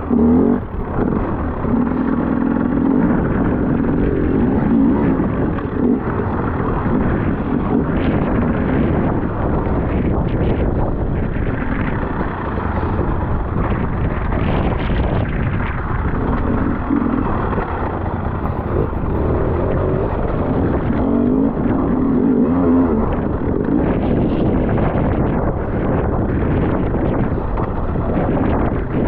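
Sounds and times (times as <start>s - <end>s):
motorcycle engine revving: 0.0s - 29.0s
wind noise on microphone: 0.0s - 29.0s.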